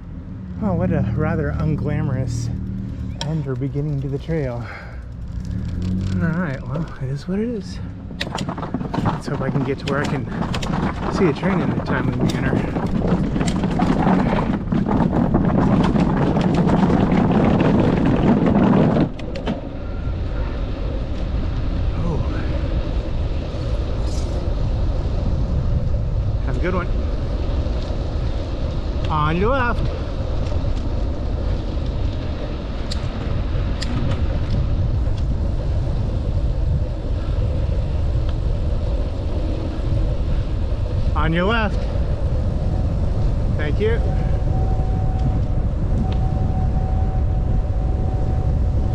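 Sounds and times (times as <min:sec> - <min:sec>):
bicycle tyres rolling: 0:00.0 - 0:48.9
wind buffeting microphone: 0:00.0 - 0:48.9
light clicks and rattles: 0:01.6 - 0:19.6.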